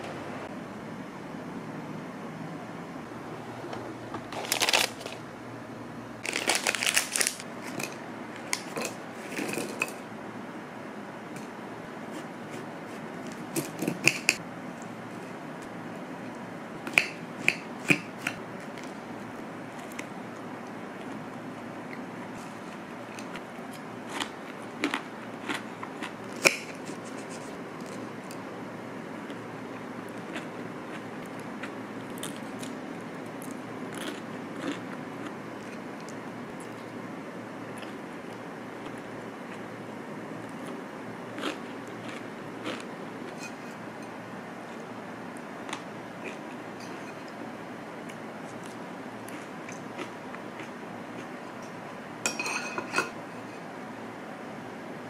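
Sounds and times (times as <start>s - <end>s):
faint steady hum: 0.0s - 55.0s
rustling crinkling handling: 4.3s - 5.2s, 6.2s - 9.8s.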